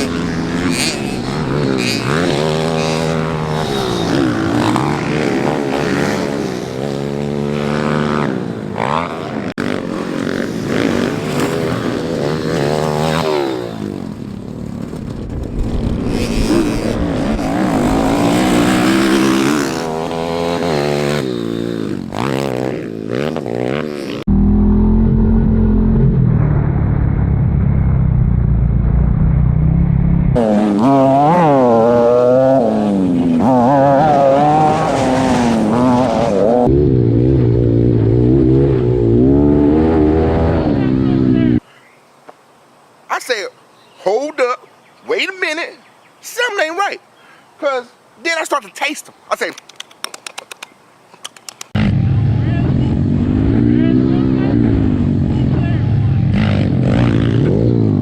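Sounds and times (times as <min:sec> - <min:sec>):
pit bike engines revving: 0:00.0 - 0:26.4, 0:29.4 - 0:41.6, 0:51.6 - 0:58.0.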